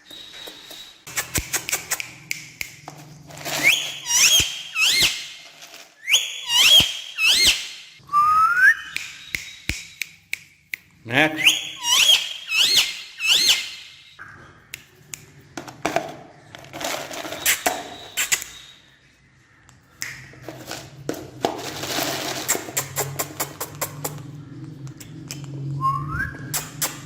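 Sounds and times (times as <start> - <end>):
rustling: 2.8 - 6.2, 16.5 - 18.3, 20.4 - 23.0
parrot chirp: 3.6 - 5.4, 6.0 - 10.2, 11.3 - 14.6, 17.4 - 19.1.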